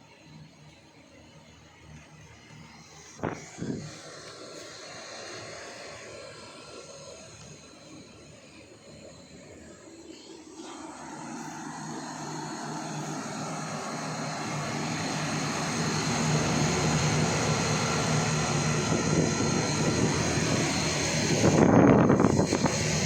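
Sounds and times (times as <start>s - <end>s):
heat pump fan whooshing: 1.8s - 23.0s
low hum: 9.8s - 23.0s.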